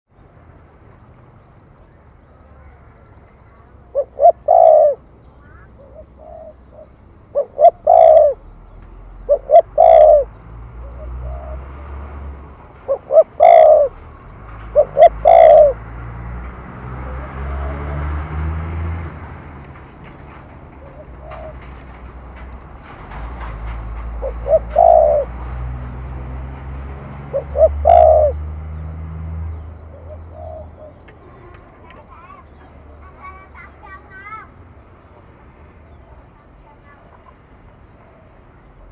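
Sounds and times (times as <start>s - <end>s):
dove cooing: 2.4s - 16.0s, 16.9s - 18.1s, 20.3s - 25.6s, 27.1s - 28.6s, 29.8s - 34.5s.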